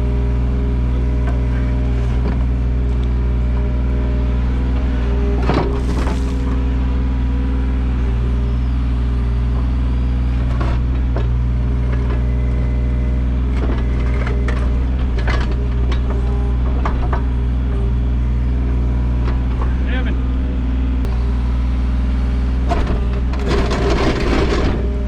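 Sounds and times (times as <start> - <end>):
excavator engine running: 0.0 - 25.0
bucket scraping soil and stone: 5.6 - 6.6.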